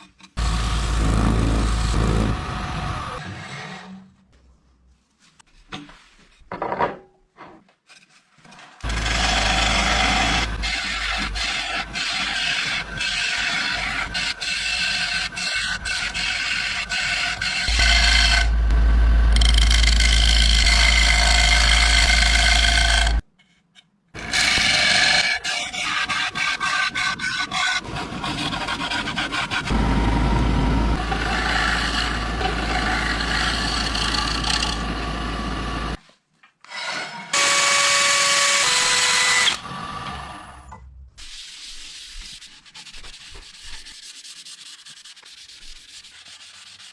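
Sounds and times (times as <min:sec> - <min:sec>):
wood being rubbed and rasped: 0:08.8 - 0:23.2, 0:24.2 - 0:29.8, 0:31.0 - 0:35.6, 0:41.2 - 0:46.9.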